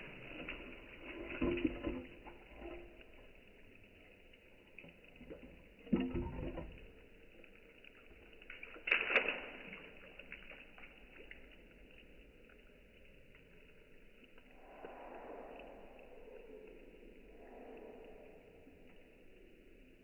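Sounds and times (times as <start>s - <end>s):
tile pieces splashing into water: 8.2s - 11.5s.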